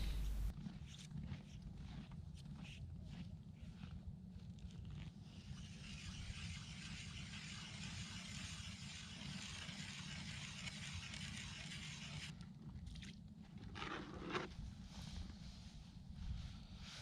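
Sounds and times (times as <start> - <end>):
hand ice auger scraping hiss: 5.6 - 12.3.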